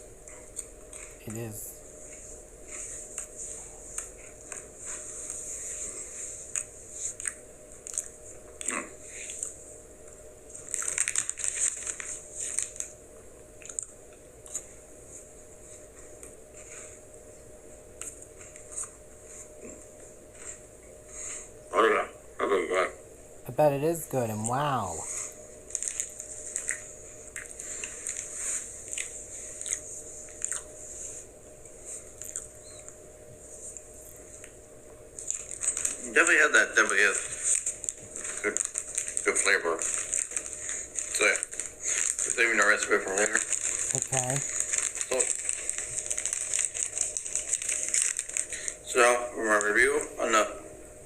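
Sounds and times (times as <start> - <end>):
chewing crunchy wafer bar: 0.3 - 1.4, 3.9 - 9.6, 10.5 - 13.0, 13.6 - 14.7, 25.0 - 30.8, 31.9 - 33.0, 35.2 - 50.1.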